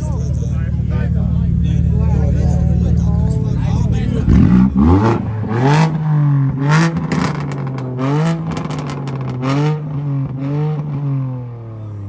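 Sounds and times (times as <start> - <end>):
car engine revving over idle: 0.0 - 12.0
sharp exhaust pops: 4.3 - 10.9.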